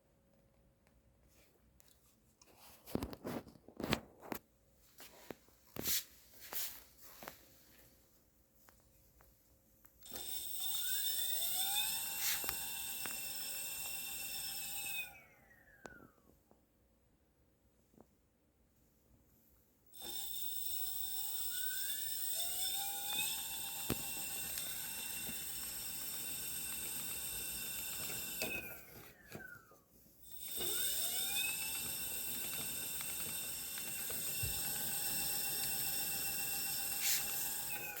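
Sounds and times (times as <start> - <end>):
electric motor whine: 10.1 - 15.6, 20.0 - 29.6, 30.2 - 38.0.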